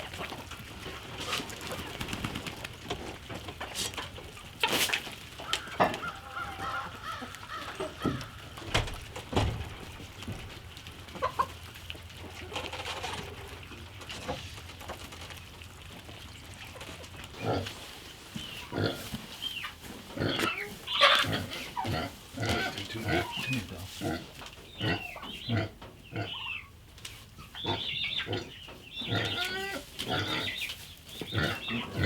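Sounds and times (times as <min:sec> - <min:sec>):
poultry calling: 0:03.7 - 0:09.1, 0:17.4 - 0:26.8, 0:27.4 - 0:32.0
knocks and clatter: 0:08.0 - 0:10.7
pigs grunting: 0:17.3 - 0:18.0, 0:18.6 - 0:26.5, 0:27.6 - 0:30.6, 0:31.2 - 0:32.0.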